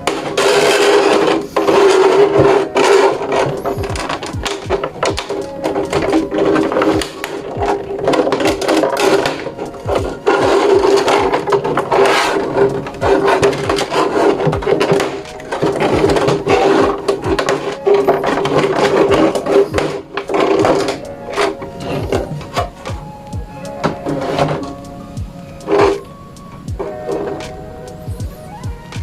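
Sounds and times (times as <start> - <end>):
cardboard and plastic packaging handled: 0.0 - 28.1.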